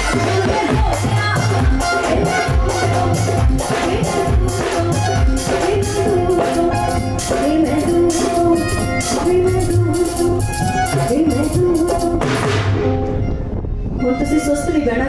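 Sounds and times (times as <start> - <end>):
woman singing: 0.0 - 12.6
drum beat and bass: 0.0 - 12.9.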